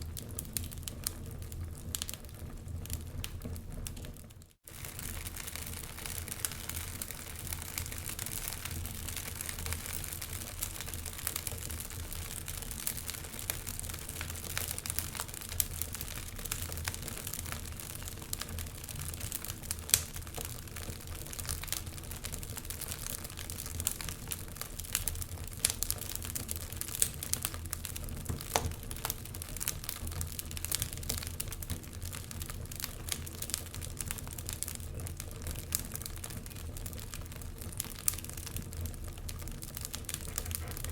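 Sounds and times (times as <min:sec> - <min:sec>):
wood fire crackling: 0:00.0 - 0:40.9
fire hissing: 0:39.8 - 0:40.9.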